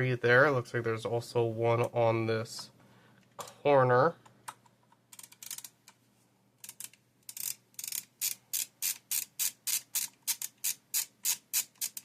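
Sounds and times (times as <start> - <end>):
ratcheting screwdriver clicking: 5.1 - 5.7, 6.6 - 12.0.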